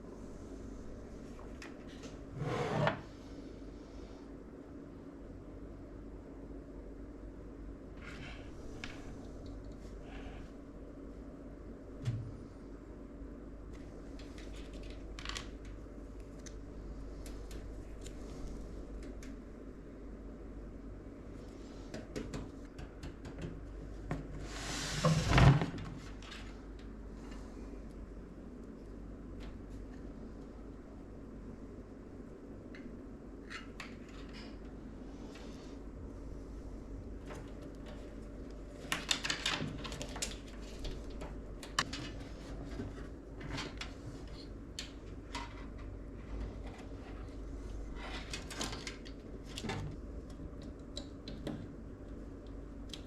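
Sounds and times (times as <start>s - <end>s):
rustling of parts and cables: 13.7s - 19.4s, 25.2s - 31.0s, 32.6s - 53.0s.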